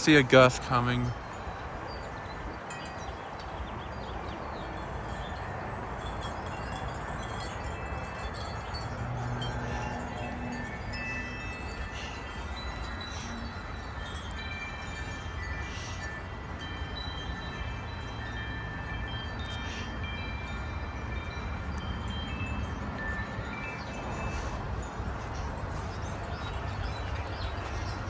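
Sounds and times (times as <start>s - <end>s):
wind chimes ringing: 0.0s - 28.0s.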